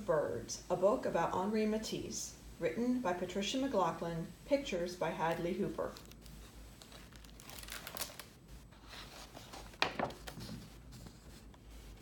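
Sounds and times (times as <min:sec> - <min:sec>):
book pages turning: 0:05.3 - 0:12.0.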